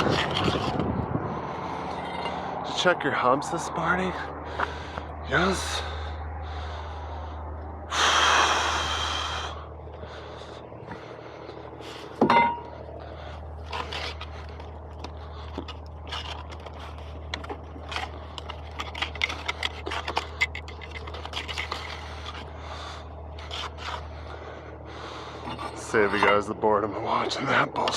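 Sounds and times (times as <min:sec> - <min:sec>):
loud scraping rush: 0:00.0 - 0:12.2
steady low hum: 0:00.0 - 0:27.9.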